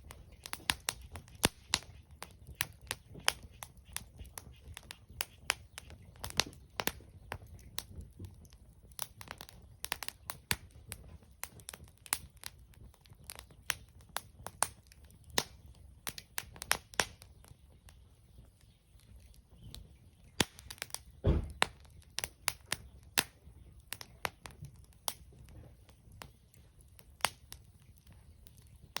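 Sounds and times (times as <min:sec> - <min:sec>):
sharp pops and snaps: 0:00.0 - 0:29.0
wood fire crackling: 0:00.0 - 0:29.0
dull thump: 0:21.2 - 0:21.6.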